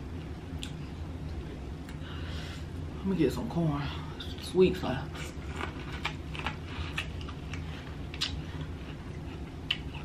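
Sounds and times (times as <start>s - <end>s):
chewing corn on the cob: 5.1s - 10.0s
wet mouth clicks and smacks: 7.0s - 8.4s.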